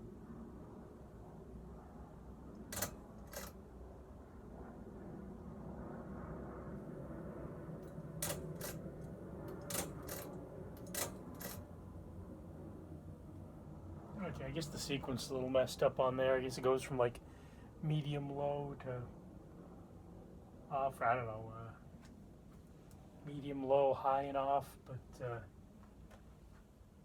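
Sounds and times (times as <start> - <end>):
fan motor hum: 0.0 - 19.5
ceiling fan pull-chain clicking: 2.5 - 3.6, 7.8 - 12.0.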